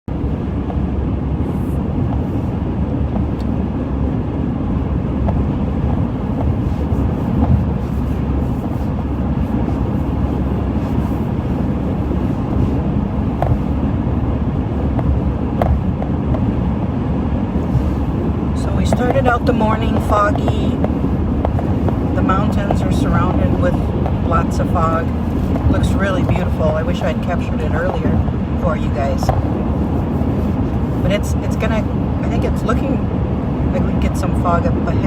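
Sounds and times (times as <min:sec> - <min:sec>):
car road noise rumble: 0:00.0 - 0:35.0.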